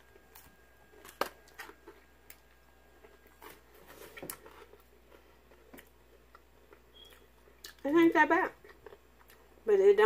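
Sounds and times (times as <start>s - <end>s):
chewing toast crunches: 0.1s - 7.9s.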